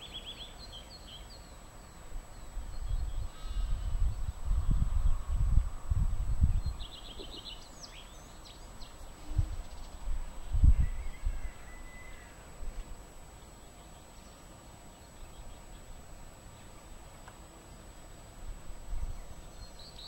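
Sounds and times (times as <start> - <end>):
birds trilling and whistling: 0.0 - 5.5, 6.6 - 12.6
thin drawn-out bird whistle: 10.6 - 12.4.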